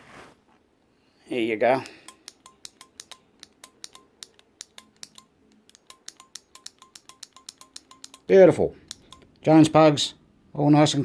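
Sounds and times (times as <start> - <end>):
relay making sharp metallic clicks: 1.8 - 9.5.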